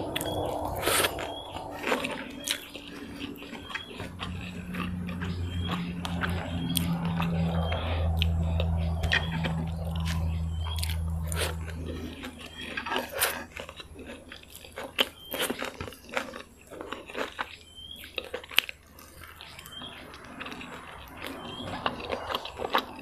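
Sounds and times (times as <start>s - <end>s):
crunchy bites: 0.0s - 23.0s
low steady hum: 0.0s - 23.0s.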